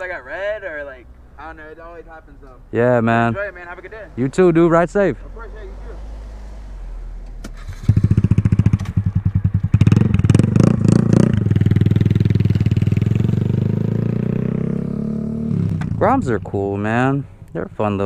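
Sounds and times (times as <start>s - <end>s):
motorcycle engine revving and idling: 4.1s - 17.1s.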